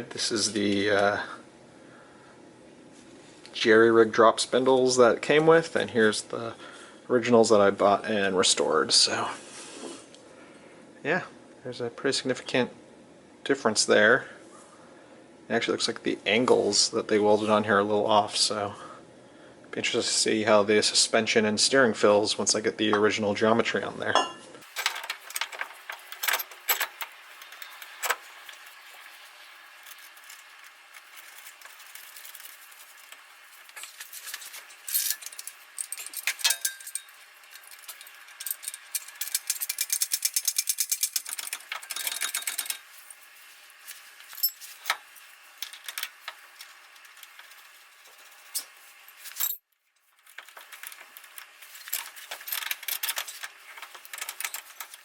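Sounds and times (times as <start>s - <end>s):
metal tools clinking: 24.2s - 49.6s, 50.2s - 55.0s.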